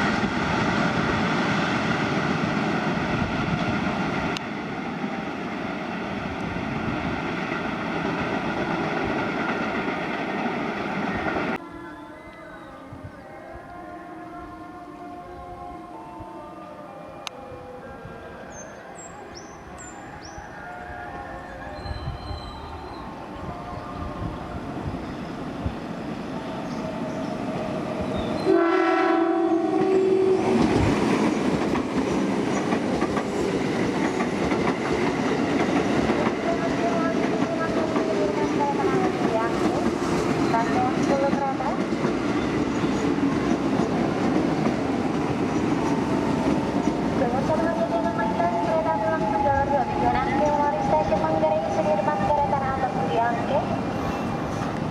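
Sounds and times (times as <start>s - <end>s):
freight train wheels rumbling on rails: 0.0s - 11.6s, 21.6s - 54.9s
locomotive horn blast: 28.4s - 30.7s.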